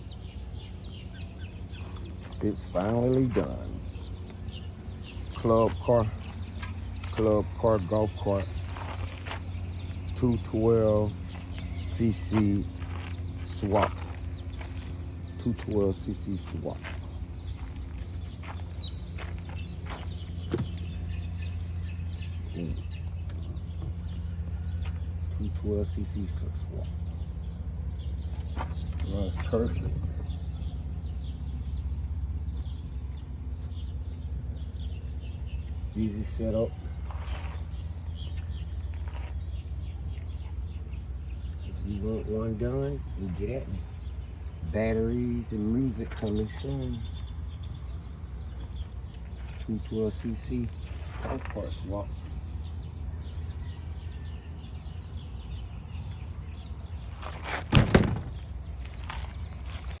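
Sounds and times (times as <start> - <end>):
faint birds chirping: 0.0 - 60.0
golf cart engine running: 0.0 - 60.0
steady low rumble: 0.0 - 60.0
sharp knocks: 57.5 - 58.5.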